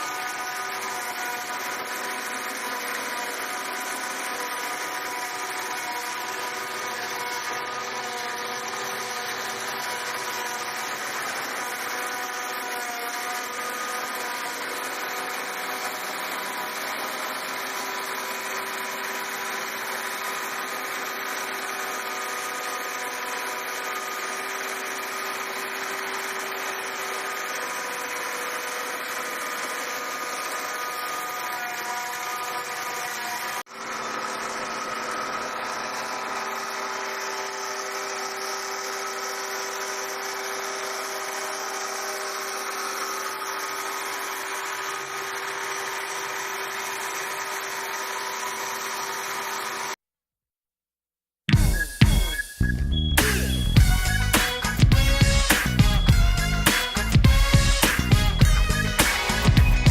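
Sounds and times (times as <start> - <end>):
farm machinery engine running: 53.0 - 59.9.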